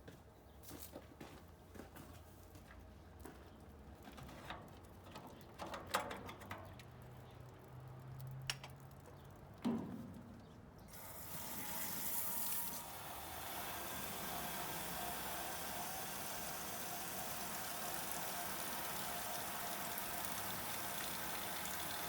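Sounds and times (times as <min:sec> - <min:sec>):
water running from hose: 0:10.9 - 0:22.0.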